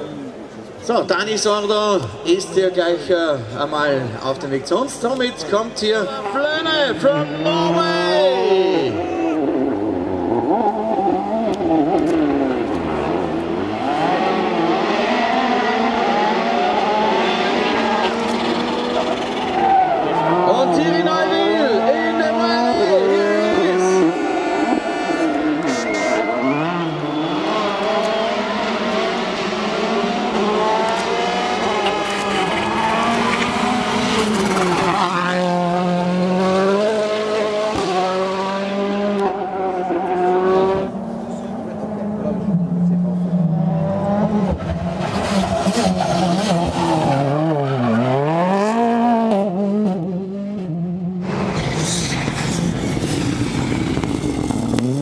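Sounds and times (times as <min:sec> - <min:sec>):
rally car engine revving: 0:04.0 - 0:55.0
tyre noise: 0:51.2 - 0:55.0.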